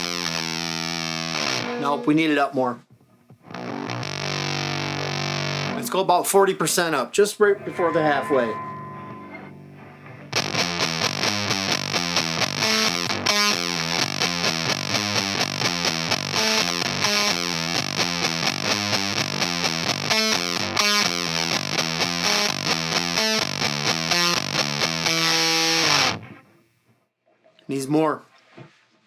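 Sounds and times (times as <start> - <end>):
fuzzed electric guitar riff: 0.0 - 2.2, 3.4 - 6.0, 7.5 - 26.4.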